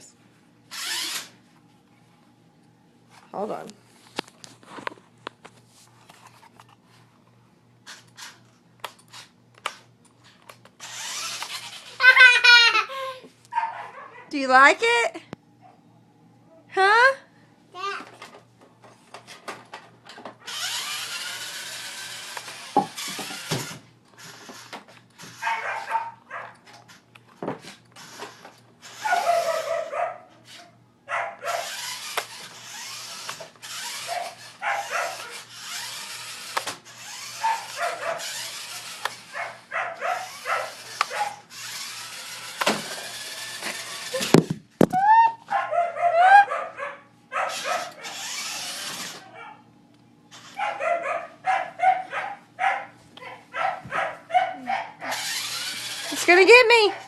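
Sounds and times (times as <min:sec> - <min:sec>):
toddler yelling and crying: 0:46.0 - 0:46.5.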